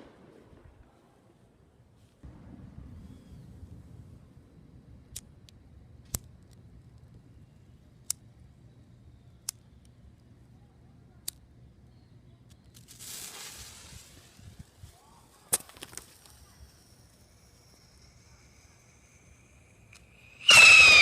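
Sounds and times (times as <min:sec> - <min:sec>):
fireworks popping and banging: 0:12.8 - 0:17.2
firework hissing whoosh: 0:12.9 - 0:21.0.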